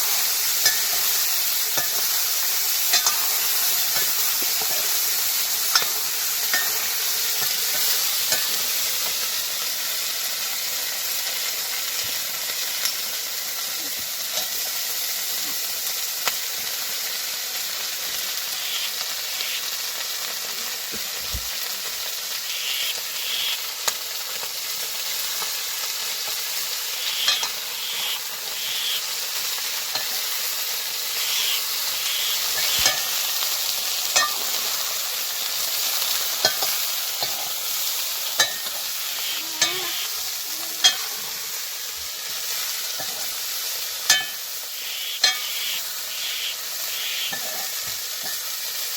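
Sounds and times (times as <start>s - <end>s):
food sizzling in a pan: 0.0s - 48.9s.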